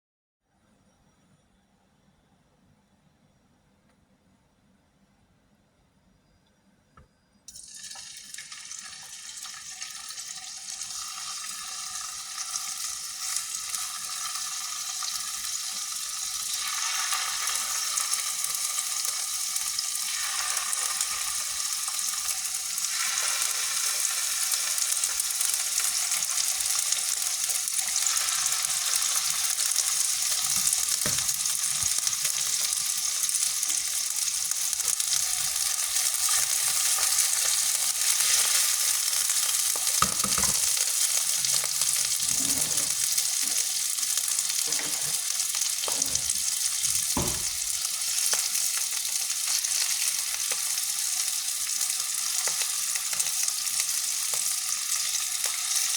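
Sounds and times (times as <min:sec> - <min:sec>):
meatballs sizzling in hot oil: 0:07.5 - 0:55.9.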